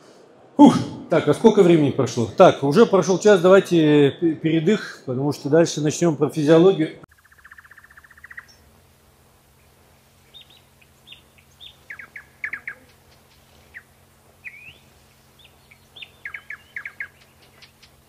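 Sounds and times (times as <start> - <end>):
small birds chirping: 7.1 - 18.0.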